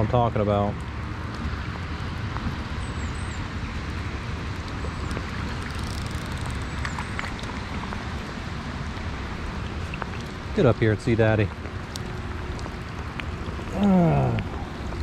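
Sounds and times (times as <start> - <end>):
rain falling on river: 0.0 - 15.0
wind rumble on microphone: 0.0 - 15.0
faint raindrop ticks: 3.8 - 15.0.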